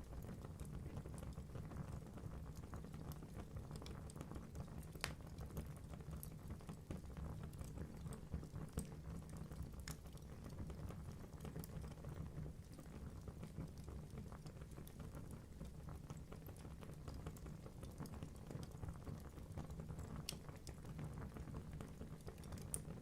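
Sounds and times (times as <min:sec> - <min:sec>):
logs crackling and popping: 0:02.5 - 0:06.4, 0:07.4 - 0:10.3, 0:19.9 - 0:23.0.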